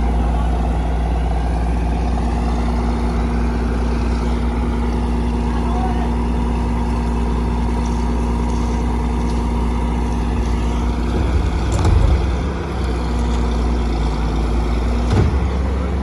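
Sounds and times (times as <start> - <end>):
diesel construction machinery running: 0.0 - 16.0
knocks: 10.5 - 13.6, 14.9 - 15.6.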